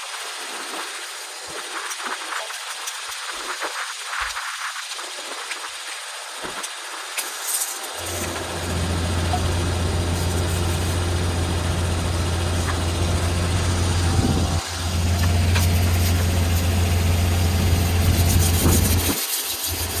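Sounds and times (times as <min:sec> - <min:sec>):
carpet cleaning machine motor humming: 0:08.0 - 0:19.1.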